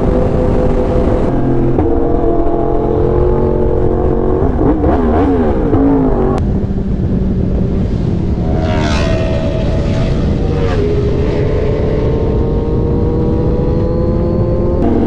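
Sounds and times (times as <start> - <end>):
motorcycle engine running: 0.0 - 15.0
wind rush: 0.0 - 15.0.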